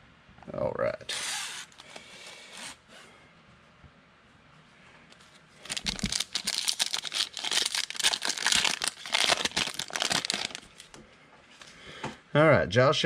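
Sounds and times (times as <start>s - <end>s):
foil wrapper tearing and crinkling: 5.6s - 11.0s.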